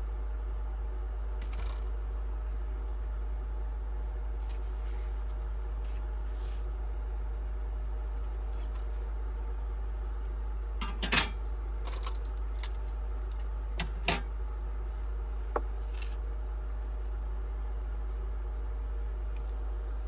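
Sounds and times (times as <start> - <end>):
steady low hum: 0.0 - 20.0
dishes and cutlery clattering: 10.8 - 11.4.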